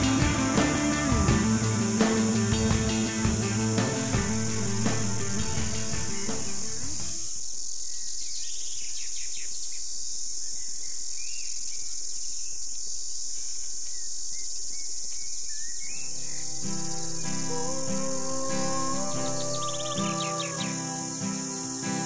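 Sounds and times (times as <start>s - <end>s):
guitar music: 0.0s - 7.2s, 16.0s - 22.0s
insect drone: 0.0s - 22.0s
bird chirps: 13.9s - 21.9s.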